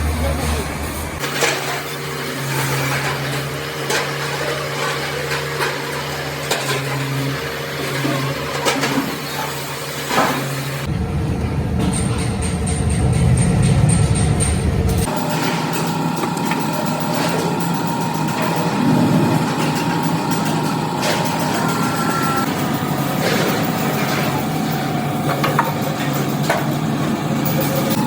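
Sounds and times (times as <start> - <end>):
low rumbling machine: 0.0 - 1.2, 10.7 - 28.0
workshop machinery humming: 0.0 - 28.0.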